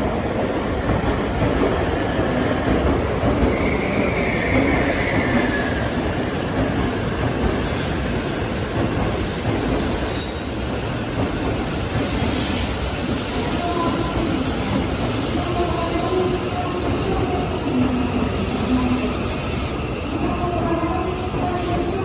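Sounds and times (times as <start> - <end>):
train wheels rumbling on rail: 0.0 - 22.0
high wheel squeal: 3.5 - 11.2.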